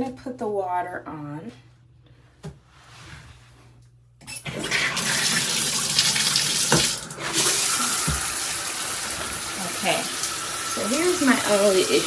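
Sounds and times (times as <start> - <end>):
shower head spraying water: 4.6 - 12.0.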